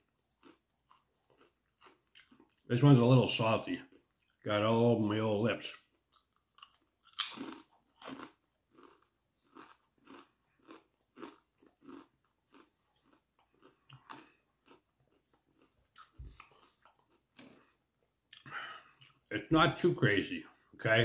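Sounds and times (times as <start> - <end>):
faint chewing of potato chip: 0.0 - 2.8, 5.7 - 19.3.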